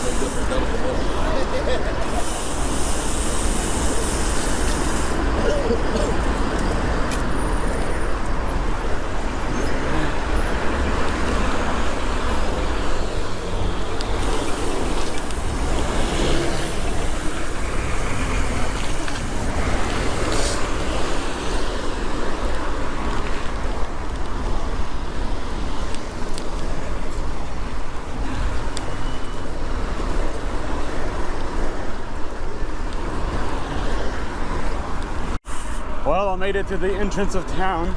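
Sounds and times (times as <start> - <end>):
city road traffic: 0.0 - 37.9.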